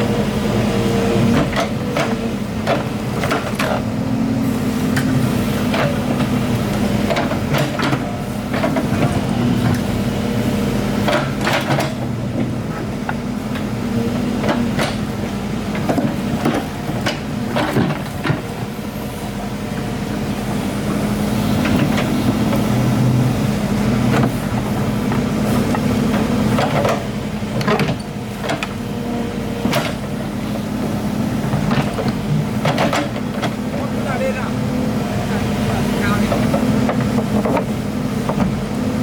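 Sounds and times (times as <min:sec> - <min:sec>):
excavator diesel engine running: 0:00.0 - 0:39.0
sharp knocks and clanks: 0:11.0 - 0:13.7, 0:25.7 - 0:28.8, 0:29.6 - 0:30.1, 0:31.5 - 0:33.9.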